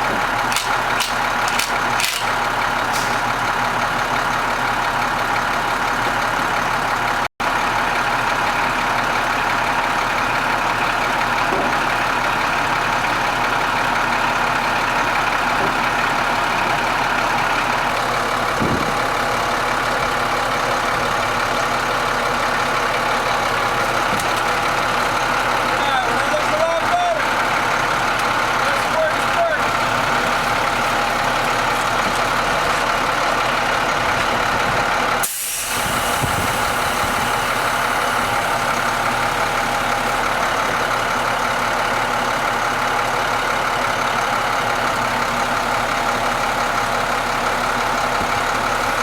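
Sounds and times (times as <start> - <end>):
truck engine idling: 0.0 - 49.0
hydraulic whine: 29.6 - 40.8.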